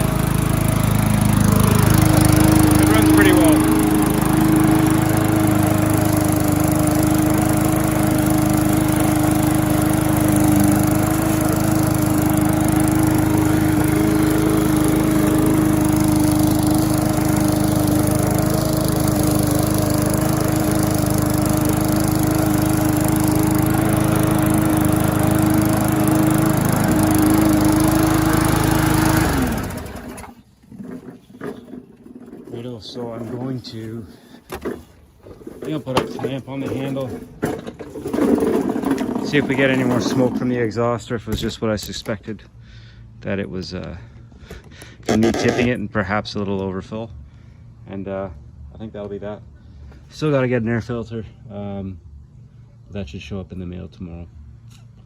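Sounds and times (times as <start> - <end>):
lawn mower engine running: 0.0 - 41.6, 44.4 - 45.8.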